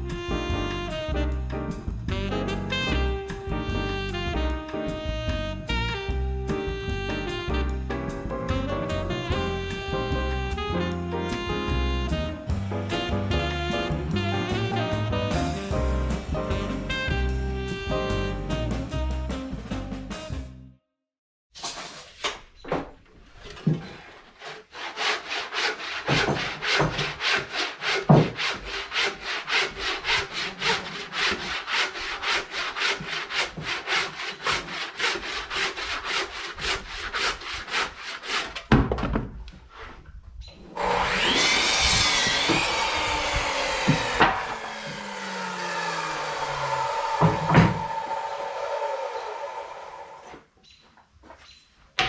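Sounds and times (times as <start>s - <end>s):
hand saw cutting timber: 23.5s - 38.7s, 40.7s - 50.4s
whirring with pitched tones: 40.7s - 50.3s.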